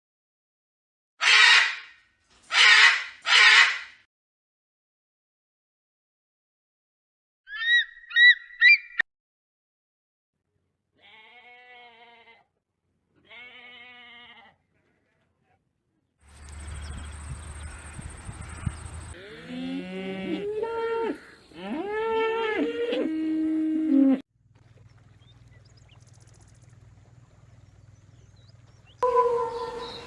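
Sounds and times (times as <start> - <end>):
livestock bleating: 11.0 - 12.5, 13.2 - 14.7, 17.6 - 23.1
thin high whine: 29.0 - 30.0.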